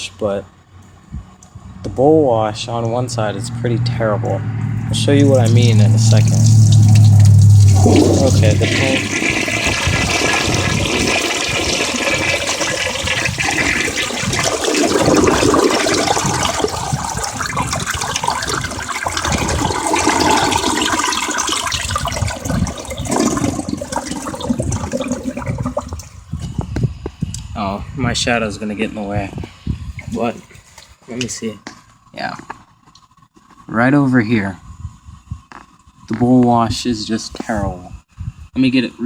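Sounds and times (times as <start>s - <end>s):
toilet flushing: 5.2s - 26.1s.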